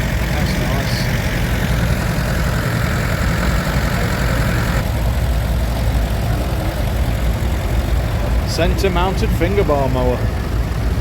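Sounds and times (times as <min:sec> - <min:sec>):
tractor engines idling: 0:00.0 - 0:11.0.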